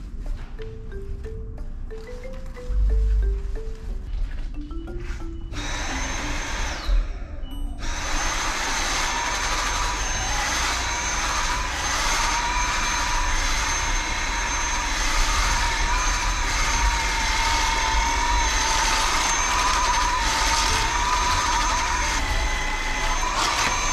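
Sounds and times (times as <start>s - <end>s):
vacuum cleaner running: 5.0s - 23.9s.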